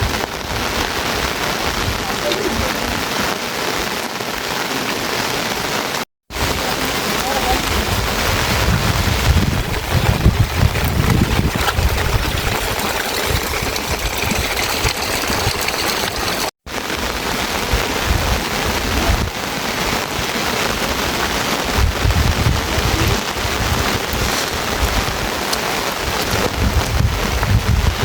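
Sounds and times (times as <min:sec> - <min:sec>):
heavy rain falling: 0:00.0 - 0:28.0
wind buffeting microphone: 0:06.3 - 0:16.4, 0:17.1 - 0:28.0.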